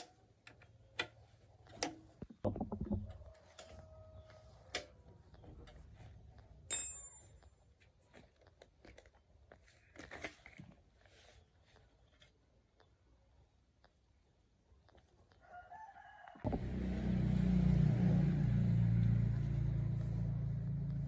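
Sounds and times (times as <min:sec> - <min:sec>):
metallic clink: 0:06.7 - 0:07.5.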